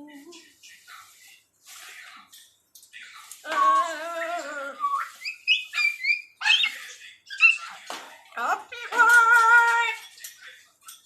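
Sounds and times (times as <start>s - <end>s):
parrot whistled chirps: 4.8s - 7.8s
parrot warbled call: 5.2s - 7.8s.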